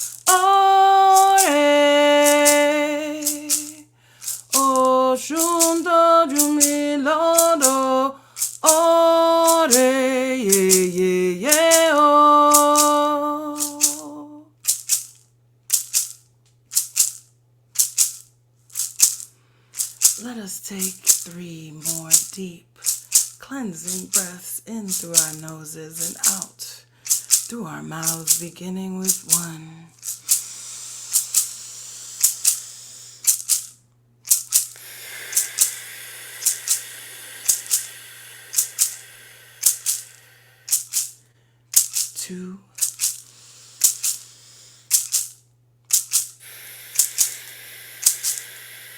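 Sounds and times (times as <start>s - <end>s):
woman chanting: 0.0s - 14.5s, 20.0s - 22.8s, 23.4s - 30.0s, 42.0s - 42.7s
hand rattle shaken: 0.0s - 48.9s
low steady hum: 0.0s - 48.9s.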